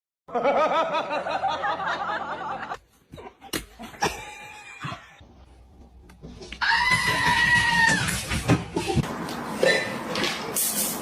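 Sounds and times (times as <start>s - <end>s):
person laughing: 3.2s - 5.2s.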